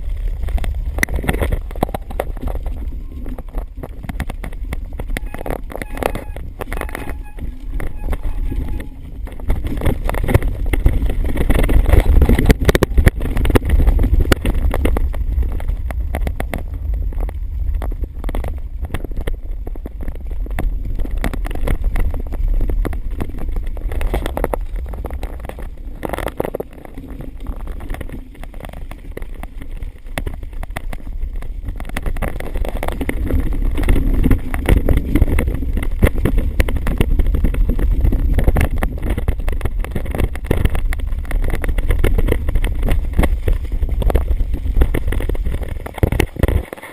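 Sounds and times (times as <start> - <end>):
wind rumbling on microphone: 0.0 - 46.9.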